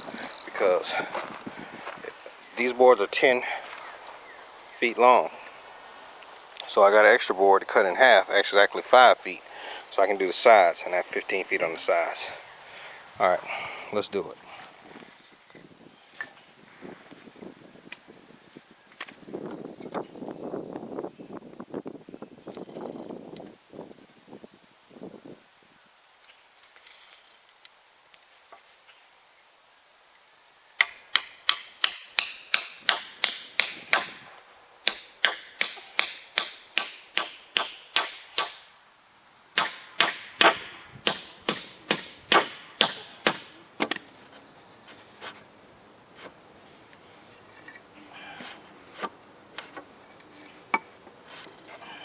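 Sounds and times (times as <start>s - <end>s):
hammer driving nails into wood: 30.8s - 38.7s, 39.6s - 44.0s.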